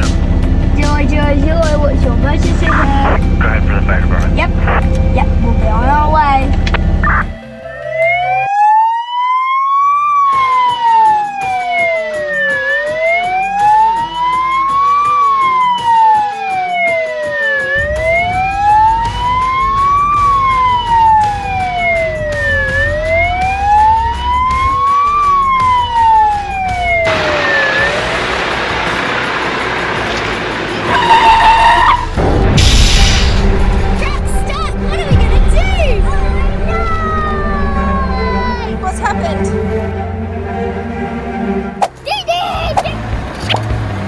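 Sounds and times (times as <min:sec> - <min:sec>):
low rumble: 0:00.0 - 0:07.4, 0:17.8 - 0:30.0, 0:31.6 - 0:41.8
fire engine siren wailing: 0:00.0 - 0:32.7, 0:35.6 - 0:41.8.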